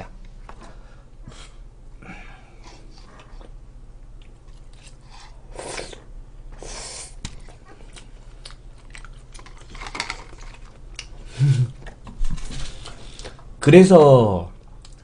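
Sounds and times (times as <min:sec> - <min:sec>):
crunchy chewing: 0:07.4 - 0:12.1.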